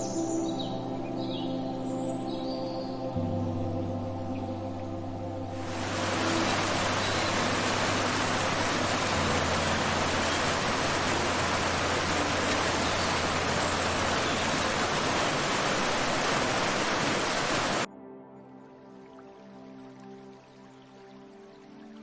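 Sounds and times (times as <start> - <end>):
loud rushing water noise: 5.5 - 17.9.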